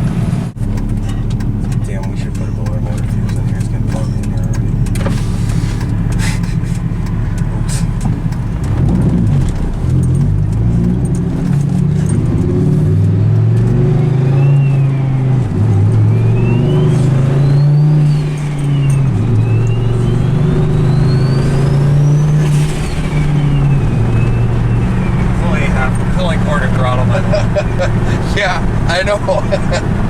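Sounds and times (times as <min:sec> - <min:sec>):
truck engine accelerating hard: 0:00.0 - 0:30.0
turbo whine: 0:12.1 - 0:30.0.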